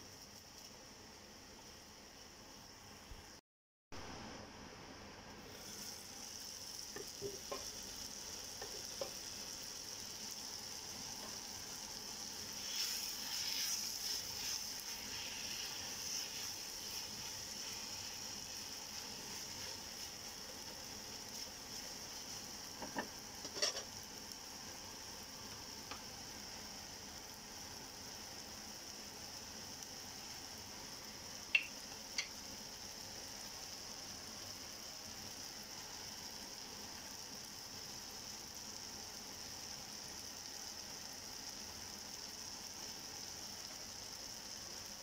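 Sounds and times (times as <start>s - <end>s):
onions sizzling in oil: 0.0s - 3.4s, 4.0s - 45.0s
spatula stirring in pan: 12.4s - 24.0s.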